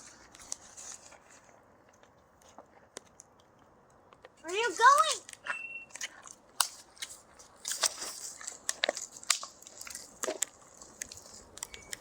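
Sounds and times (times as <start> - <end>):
wood fire crackling: 0.0 - 12.0.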